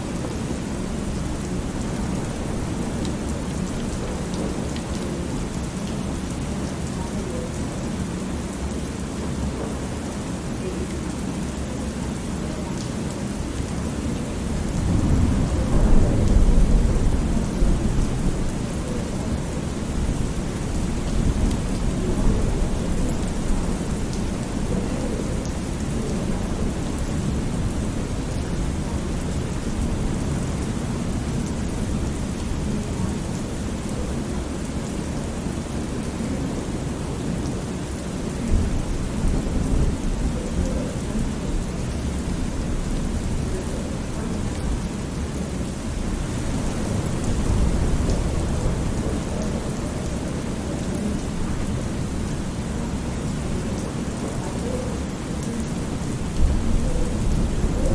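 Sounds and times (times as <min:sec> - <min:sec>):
steady rain: 0:00.0 - 0:57.9
rolling thunder: 0:14.7 - 0:20.2.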